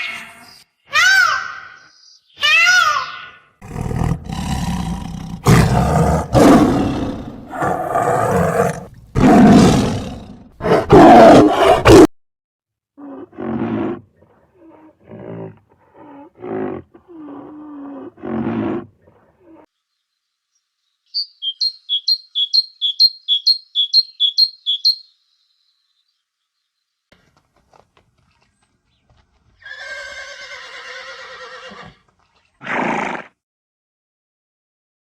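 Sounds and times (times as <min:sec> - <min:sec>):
big cat roaring: 0:03.6 - 0:12.1, 0:13.0 - 0:19.6.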